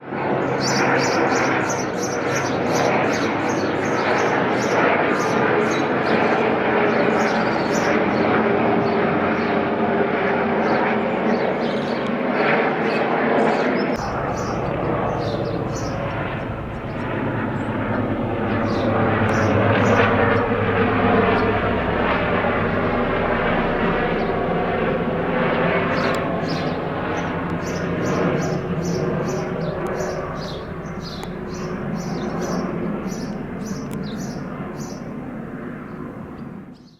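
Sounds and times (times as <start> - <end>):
helicopter flying past: 0.0 - 36.9
bird chirping: 14.0 - 35.2.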